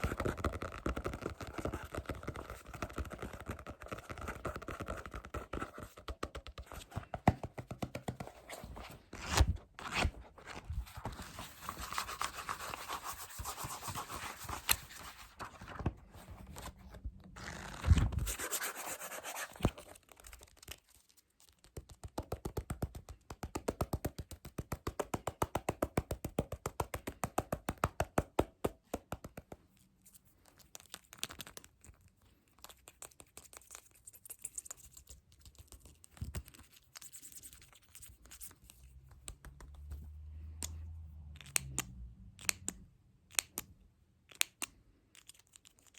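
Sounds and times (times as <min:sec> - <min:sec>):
scratchy rubbing: 0:08.2 - 0:15.4, 0:17.4 - 0:20.0.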